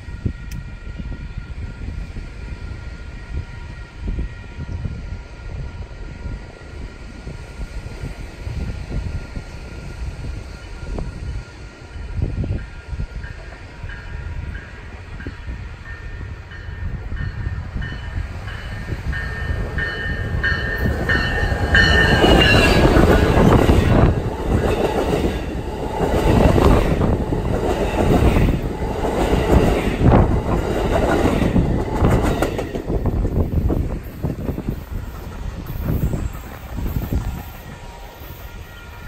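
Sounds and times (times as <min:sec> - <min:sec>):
train passing with wheel clatter: 0:00.0 - 0:39.0
high ringing bell: 0:15.9 - 0:23.4.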